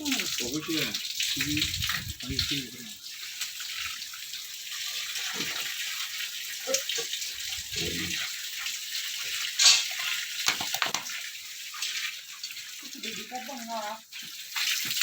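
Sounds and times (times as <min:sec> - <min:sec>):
hiss of running water: 0:00.0 - 0:04.0, 0:04.7 - 0:15.0
water splash: 0:09.5 - 0:11.3.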